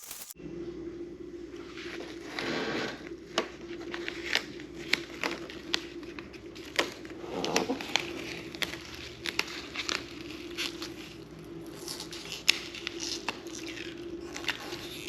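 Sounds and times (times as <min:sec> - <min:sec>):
plastic sheet crinkling: 0:00.0 - 0:00.4, 0:03.3 - 0:15.0
steady low hum: 0:00.3 - 0:15.0.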